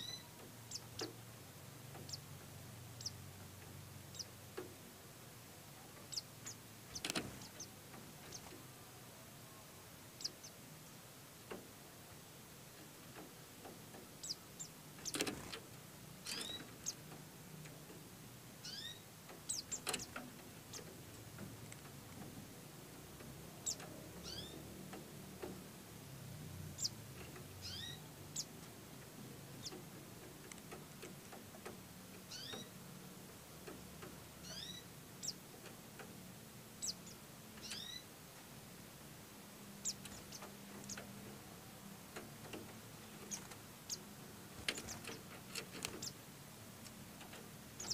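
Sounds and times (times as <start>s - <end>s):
high-pitched bird chirps: 0.0s - 0.9s, 18.6s - 19.8s, 27.6s - 28.5s, 32.3s - 32.7s, 34.4s - 35.4s, 36.8s - 38.1s.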